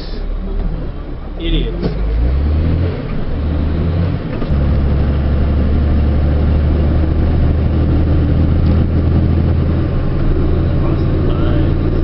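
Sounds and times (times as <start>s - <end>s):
diesel truck engine drone: 0.0s - 12.0s.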